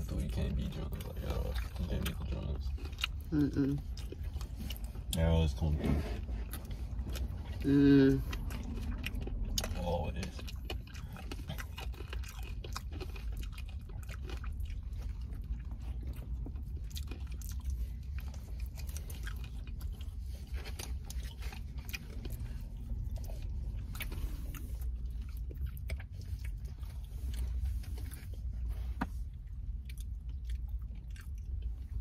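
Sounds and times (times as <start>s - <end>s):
chewing and biting chicken wings: 6.4s - 28.6s.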